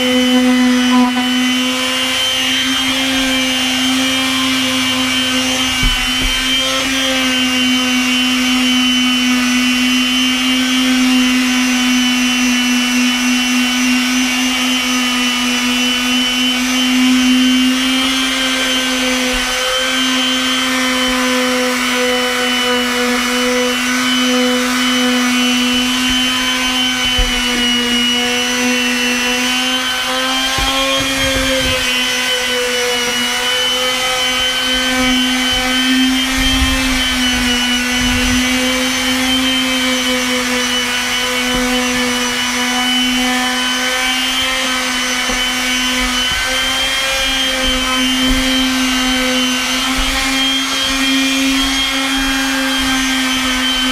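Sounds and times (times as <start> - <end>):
orbital sander sanding wood: 0.0 - 53.9.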